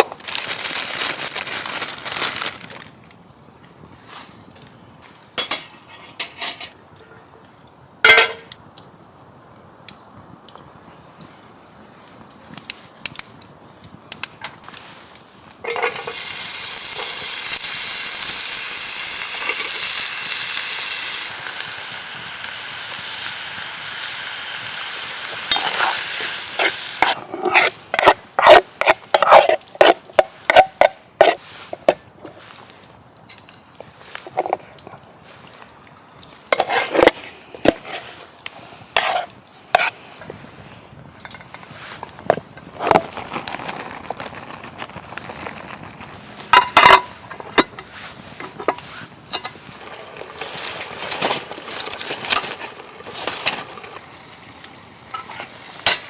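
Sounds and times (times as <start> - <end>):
utensil scraping in a pan: 14.8 - 32.8, 36.3 - 40.6, 41.4 - 54.1, 55.0 - 56.0
food sizzling in a pan: 15.6 - 29.4, 48.8 - 56.0.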